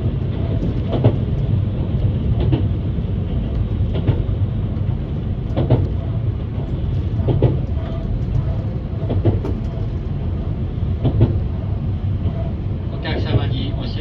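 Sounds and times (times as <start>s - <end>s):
railcar engine rumble: 0.0s - 14.0s.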